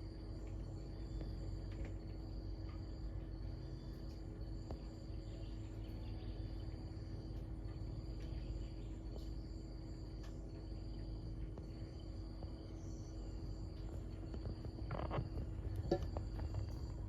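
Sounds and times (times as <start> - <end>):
insects trilling: 0.0 - 17.0
low rumble: 12.4 - 17.0.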